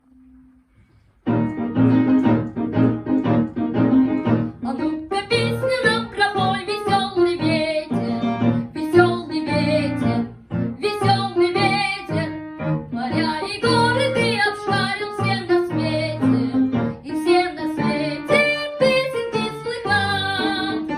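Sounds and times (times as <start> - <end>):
lively piano: 1.2 - 20.9
child singing: 4.6 - 12.3, 12.9 - 20.9.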